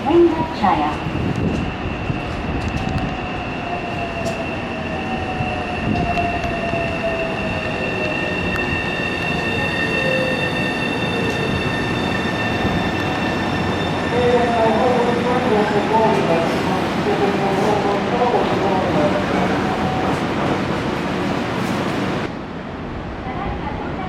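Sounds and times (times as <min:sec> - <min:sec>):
train rumble: 0:00.0 - 0:24.0
high-pitched squeal: 0:03.2 - 0:14.6.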